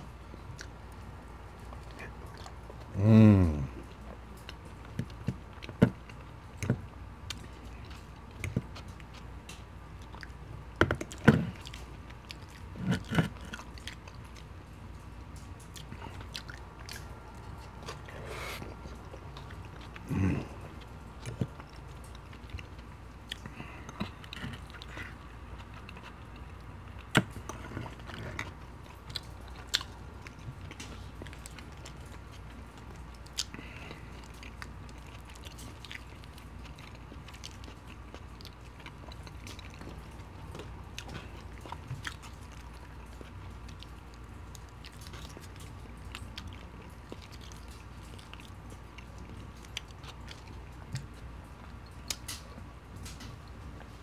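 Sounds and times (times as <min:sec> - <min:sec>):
close-up chewing and biting: 0:00.0 - 0:54.0.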